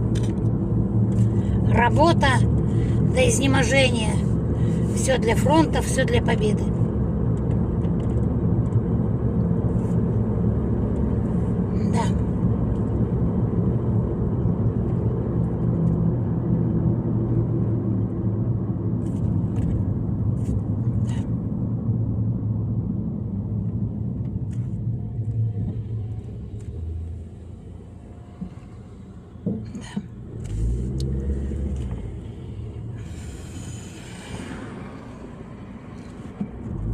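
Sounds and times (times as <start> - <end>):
car road and engine rumble: 0.0 - 36.9.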